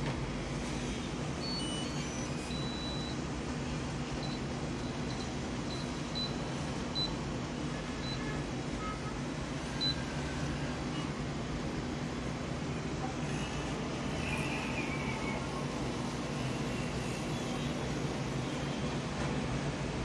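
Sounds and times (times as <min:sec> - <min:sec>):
washing machine humming: 0:00.0 - 0:16.6
short high-pitched beeps: 0:01.4 - 0:03.2, 0:04.2 - 0:07.2, 0:08.0 - 0:08.3, 0:09.8 - 0:10.1.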